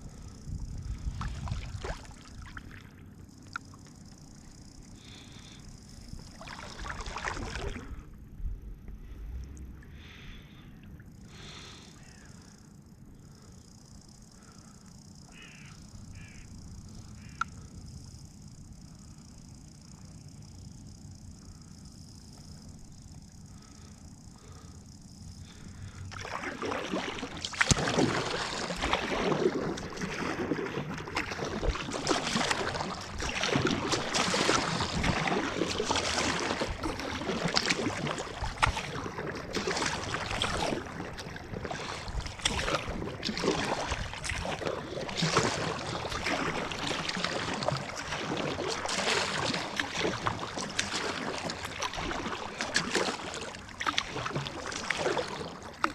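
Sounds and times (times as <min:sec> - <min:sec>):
water sloshing against hull: 0:00.0 - 0:55.9
paddle strokes splashing: 0:06.2 - 0:08.0, 0:25.4 - 0:55.9.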